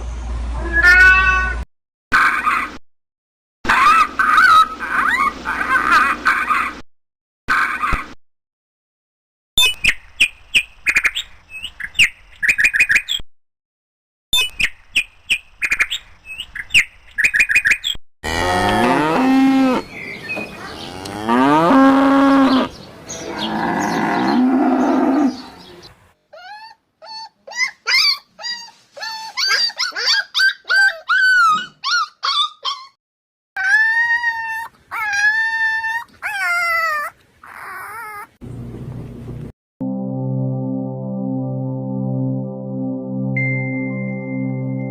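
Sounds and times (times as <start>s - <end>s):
cattle mooing: 18.3s - 19.9s, 20.8s - 25.6s
wavering chirping cries: 22.0s - 25.7s.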